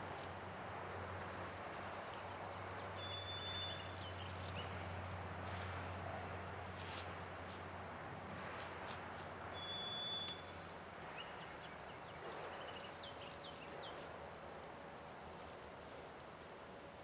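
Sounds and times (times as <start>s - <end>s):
songbird singing: 1.0s - 7.6s, 9.5s - 14.3s.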